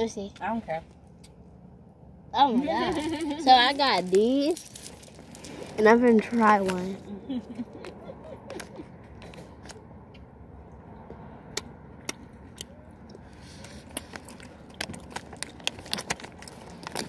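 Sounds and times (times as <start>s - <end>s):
chewing candy with mouth clicks: 11.5s - 17.0s.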